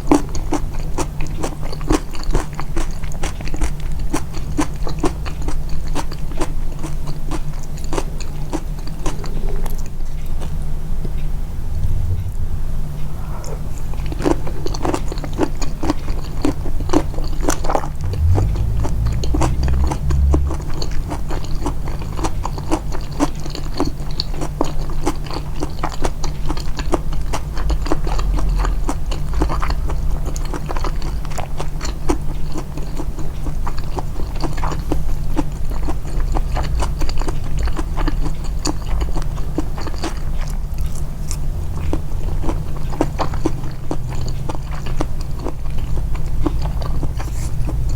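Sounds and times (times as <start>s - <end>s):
close chewing with wet clicks: 0.0s - 11.3s, 13.8s - 47.9s
low hum: 10.6s - 15.3s, 16.0s - 23.6s, 27.6s - 31.6s.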